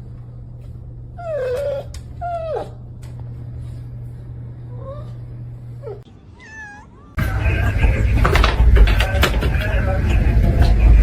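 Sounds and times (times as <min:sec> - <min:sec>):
steady low hum: 0:00.0 - 0:06.3
dog whining: 0:01.2 - 0:02.9, 0:05.8 - 0:07.2.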